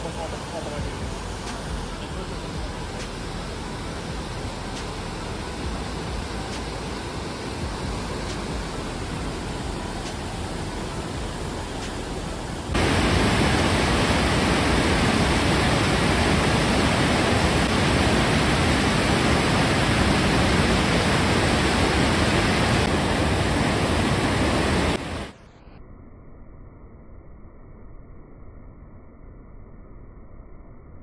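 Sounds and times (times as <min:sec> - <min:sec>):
waterfall roaring: 0:04.2 - 0:25.3.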